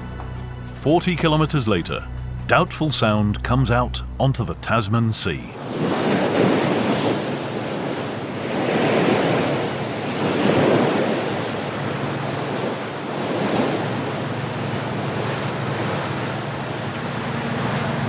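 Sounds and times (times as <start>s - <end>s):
wind: 3.0s - 18.0s.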